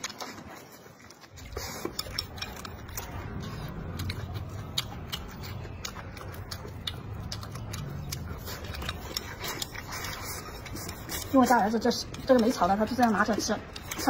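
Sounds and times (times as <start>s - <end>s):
crunchy chewing of shrimp: 0.0s - 14.0s.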